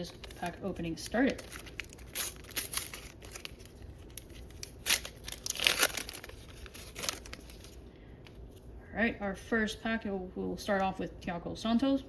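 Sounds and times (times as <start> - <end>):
sticker packet tearing: 0.0 - 7.8
wrapper crinkling: 0.0 - 7.9.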